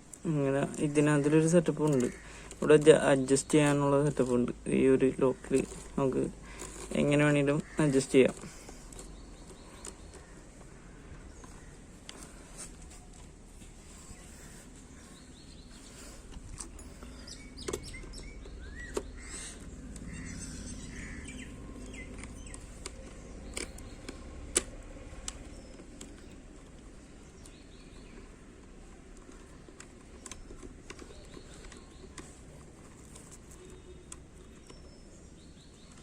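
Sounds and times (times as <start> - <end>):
clicks and knocks of handled gear: 0.0 - 36.0
low background noise: 0.0 - 36.0
faint bird chirps: 30.2 - 36.0.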